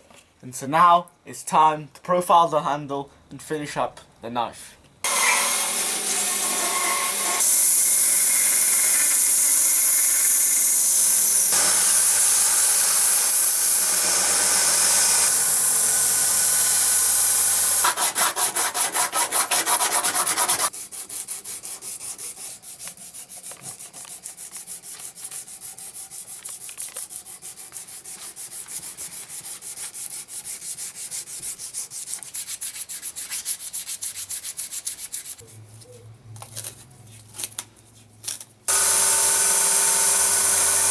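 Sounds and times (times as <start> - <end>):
back-and-forth sanding strokes: 5.0 - 35.4, 38.7 - 40.9
loud steady sanding: 5.1 - 35.2, 38.7 - 40.9.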